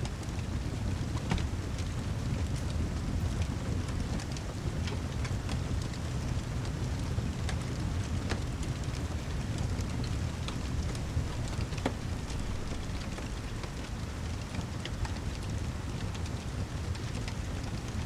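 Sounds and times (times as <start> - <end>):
fire crackles: 0.1 - 18.0
deep constant rumble: 7.8 - 15.4
heavy rain hiss: 8.8 - 15.0.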